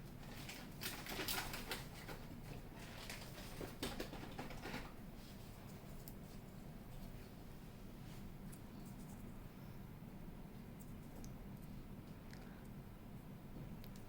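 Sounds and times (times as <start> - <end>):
steady low hum: 0.0 - 14.0
handling noise rustling and clicking: 0.1 - 7.2.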